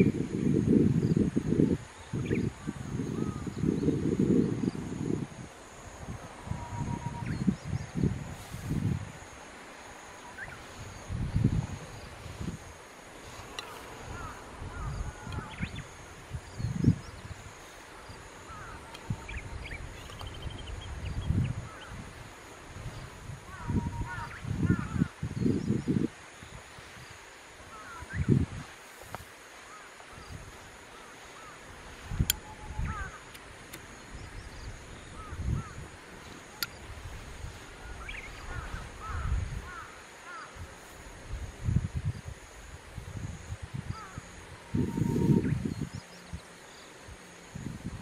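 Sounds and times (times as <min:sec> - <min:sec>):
distant birds calling: 0:09.5 - 0:25.6, 0:26.3 - 0:28.4, 0:29.4 - 0:40.9, 0:43.9 - 0:47.1
high ticks: 0:13.4 - 0:14.4, 0:32.2 - 0:32.5, 0:33.1 - 0:34.0, 0:36.3 - 0:36.9.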